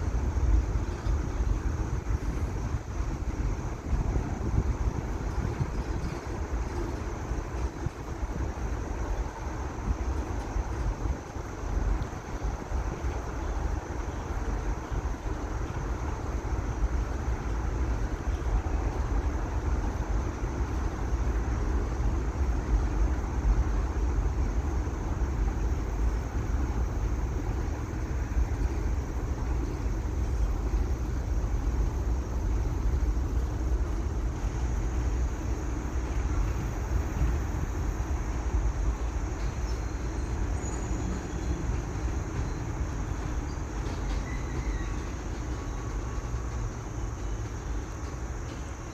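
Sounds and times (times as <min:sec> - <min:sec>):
freight train wheels rumbling: 0:00.0 - 0:48.9.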